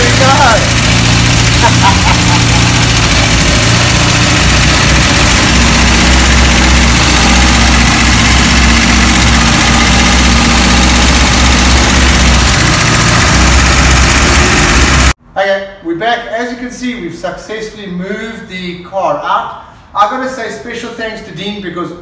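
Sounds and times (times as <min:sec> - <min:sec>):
car engine idling: 0:00.0 - 0:15.2.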